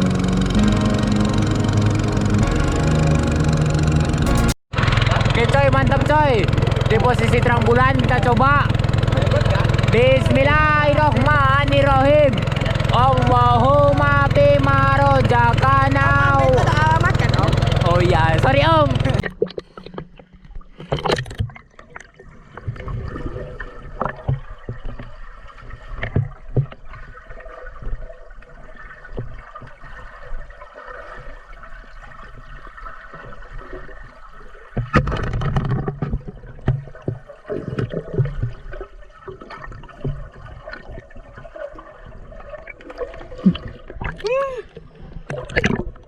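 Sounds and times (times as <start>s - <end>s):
water gurgling and sloshing: 0.0s - 46.0s
knocks and clicks: 2.4s - 4.6s.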